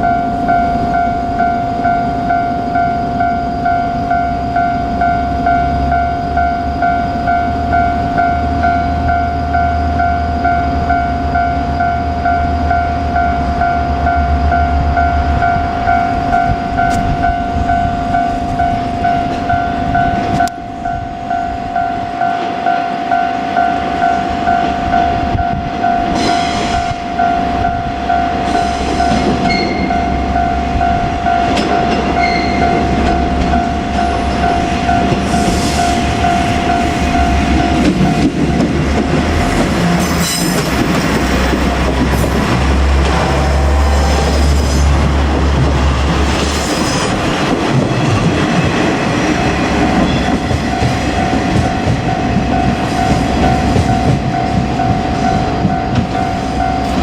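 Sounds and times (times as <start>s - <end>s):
level crossing bell ringing: 0.0s - 39.7s, 49.3s - 57.0s
train passing: 0.0s - 57.0s
wheels clacking on rail joints: 24.0s - 57.0s.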